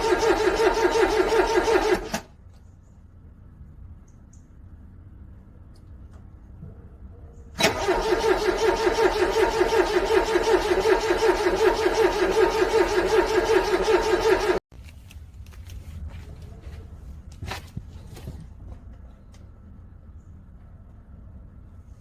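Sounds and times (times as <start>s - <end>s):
car engine cranking: 0.0s - 2.3s, 7.6s - 14.6s.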